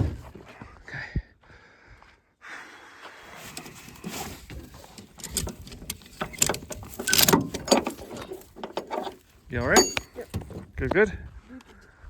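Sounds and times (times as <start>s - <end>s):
clicks knocks and rattles: 3.4s - 10.7s.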